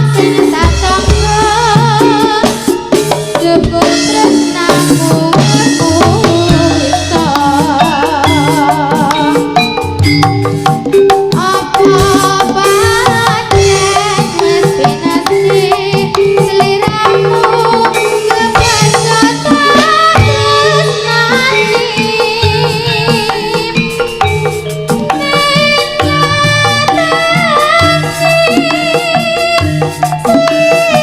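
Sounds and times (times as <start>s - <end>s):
hand drums playing busy rhythm: 0.0s - 31.0s
steady held tones: 0.0s - 31.0s
wavering melodic lead line: 0.0s - 31.0s.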